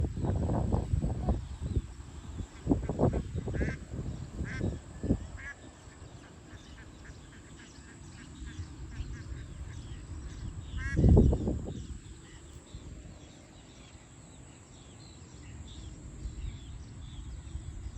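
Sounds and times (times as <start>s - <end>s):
outdoor background noise: 0.0s - 17.9s
quacking animal calls: 2.8s - 3.8s, 10.7s - 11.1s.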